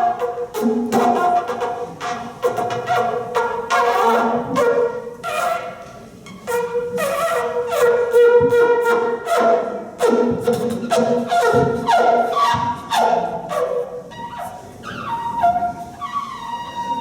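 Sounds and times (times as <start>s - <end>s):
wind instrument short notes: 6.4s - 17.0s.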